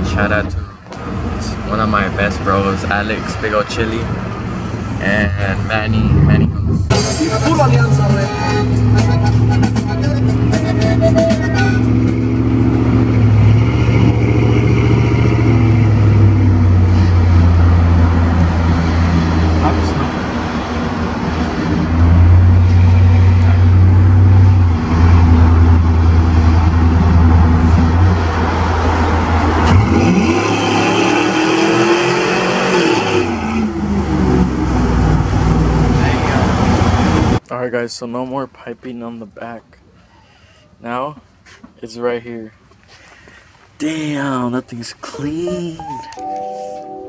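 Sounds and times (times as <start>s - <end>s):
pickup truck engine revving: 4.0s - 37.4s.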